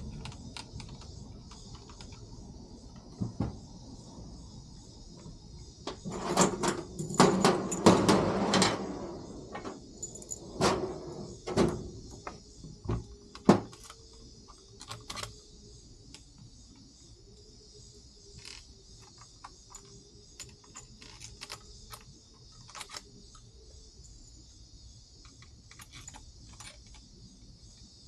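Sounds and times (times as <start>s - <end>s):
tools clattering on workbench: 6.0s - 11.8s.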